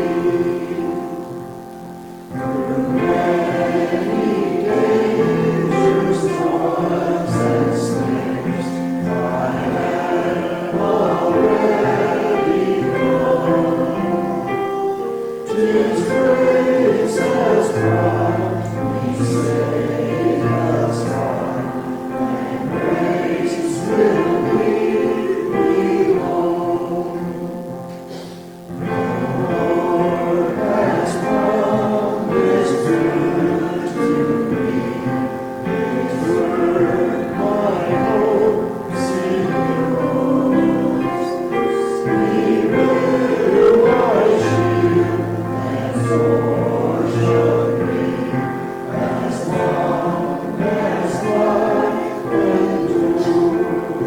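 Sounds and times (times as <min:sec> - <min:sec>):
congregation singing a hymn: 0:00.0 - 0:54.0
piano accompaniment: 0:00.0 - 0:54.0.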